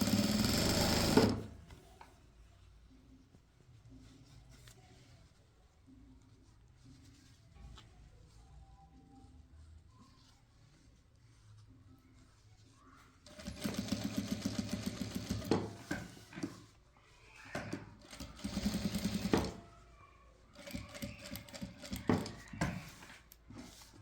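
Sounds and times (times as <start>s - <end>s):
sewing machine stitching: 0.0s - 1.6s, 13.2s - 16.6s, 17.6s - 19.6s, 20.6s - 23.0s.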